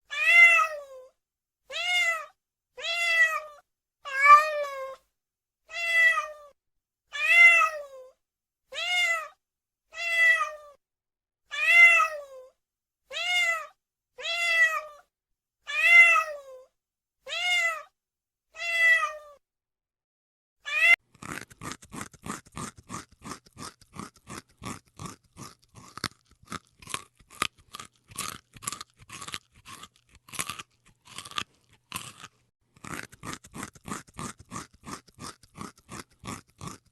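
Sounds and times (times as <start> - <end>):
cat meowing: 0.1 - 1.1, 1.7 - 5.0, 5.7 - 8.1, 8.7 - 10.8, 11.5 - 12.5, 13.1 - 15.0, 15.7 - 17.9, 18.6 - 19.4, 20.7 - 21.0
cat crunching dry food: 21.0 - 36.9.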